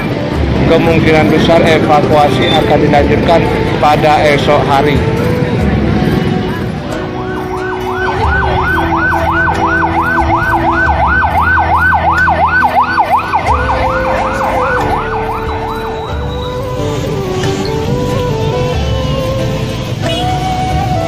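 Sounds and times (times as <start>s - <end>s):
emergency siren yelping: 7.1s - 19.5s.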